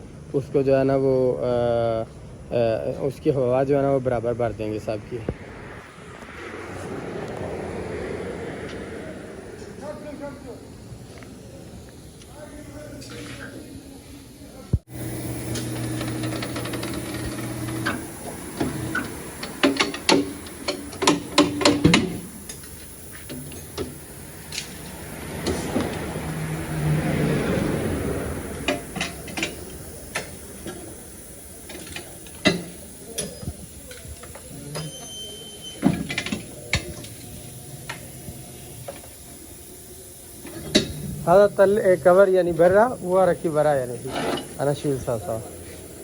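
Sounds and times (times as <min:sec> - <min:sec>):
machine hum: 0:04.2 - 0:33.1
rushing hiss: 0:16.6 - 0:34.8.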